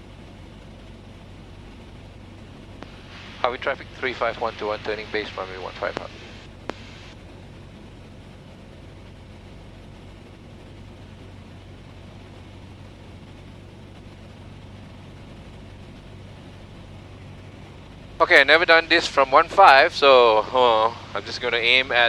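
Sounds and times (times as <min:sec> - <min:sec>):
aircraft engine droning in flight: 0:00.0 - 0:22.0.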